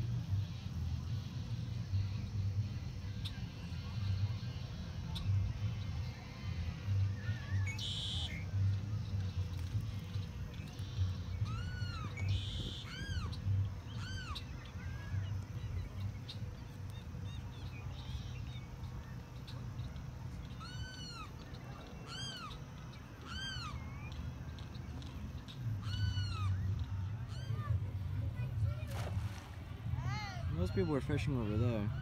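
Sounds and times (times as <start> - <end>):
bird calling: 10.8 - 16.4, 20.4 - 27.7.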